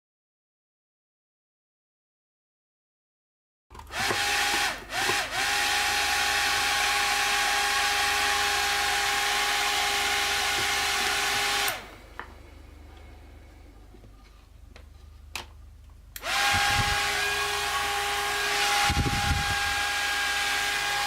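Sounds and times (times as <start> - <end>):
small electric motor whining: 3.8 - 12.0, 16.2 - 21.0.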